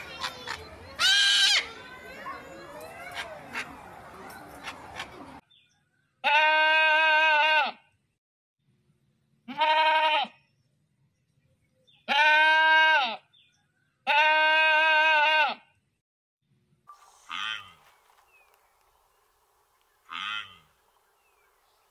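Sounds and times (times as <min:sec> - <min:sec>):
goat bleating: 0:01.0 - 0:01.7, 0:06.2 - 0:07.8, 0:09.5 - 0:10.4, 0:12.1 - 0:13.2, 0:14.0 - 0:15.6.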